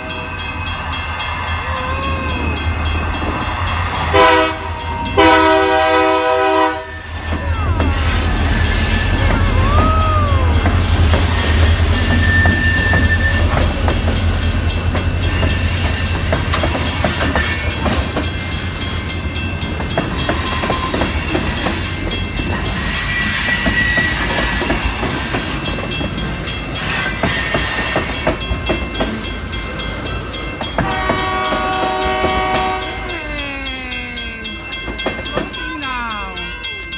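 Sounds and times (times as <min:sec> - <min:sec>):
chord of steady tones: 0:00.0 - 0:23.1, 0:24.2 - 0:36.9
freight train rumbling: 0:00.0 - 0:36.9
wheel clacks over rail joints: 0:07.1 - 0:33.1.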